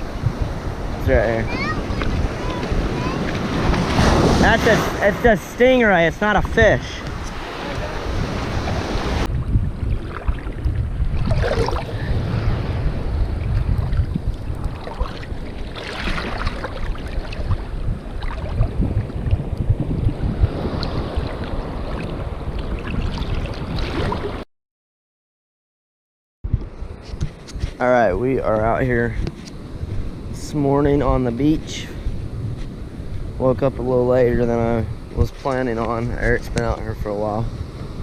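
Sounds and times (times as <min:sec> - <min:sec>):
surf washing onto beach: 0:00.0 - 0:24.4
wind buffeting microphone: 0:00.0 - 0:24.4, 0:26.4 - 0:38.0.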